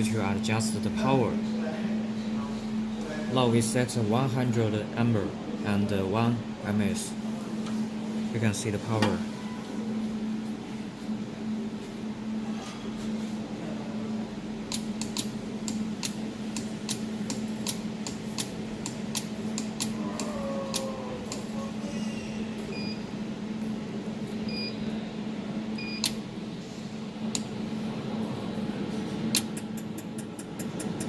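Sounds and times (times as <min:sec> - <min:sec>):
machine hum: 0:00.0 - 0:31.0
short beeps: 0:09.3 - 0:09.8.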